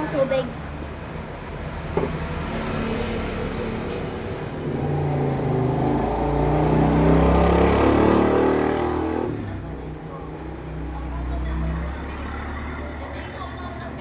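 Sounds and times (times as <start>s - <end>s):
vehicle engine revving: 1.8s - 10.0s.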